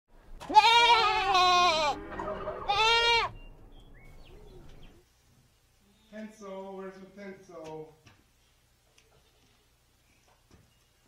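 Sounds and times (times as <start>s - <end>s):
goat bleating: 0.4s - 3.3s.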